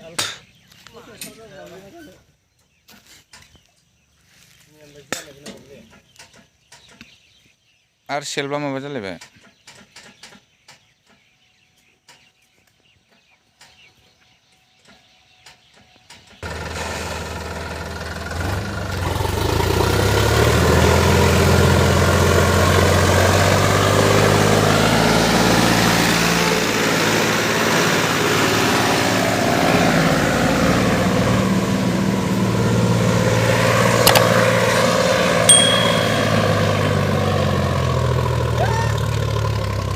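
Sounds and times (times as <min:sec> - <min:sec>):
tractor diesel engine under load: 0:16.4 - 0:39.9
sharp click: 0:34.0 - 0:34.3.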